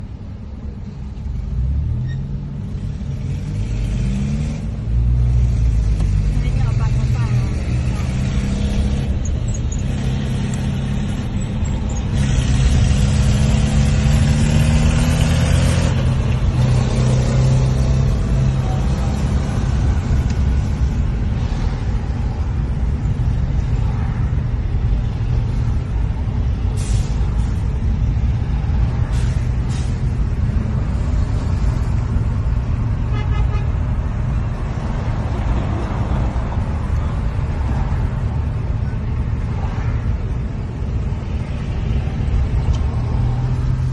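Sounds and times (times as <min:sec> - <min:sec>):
car engine and road rumble: 0:00.0 - 0:43.9
hiss from wet road: 0:26.7 - 0:27.7, 0:29.0 - 0:30.1.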